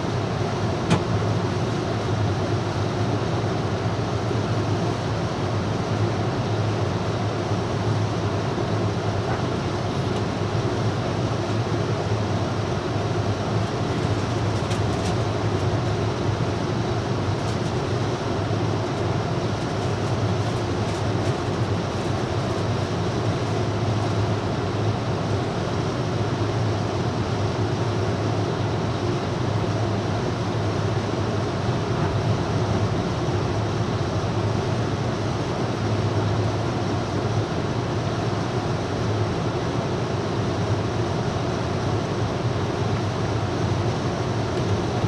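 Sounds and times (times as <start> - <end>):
train rumbling rail noise: 0.0 - 3.6, 7.4 - 37.4.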